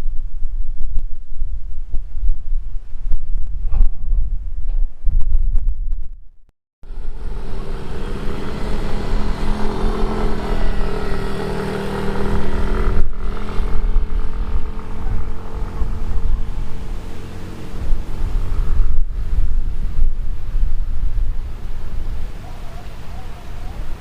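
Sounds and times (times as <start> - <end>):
wind rumble on microphone: 0.0 - 24.0
aircraft engines droning: 6.9 - 20.7.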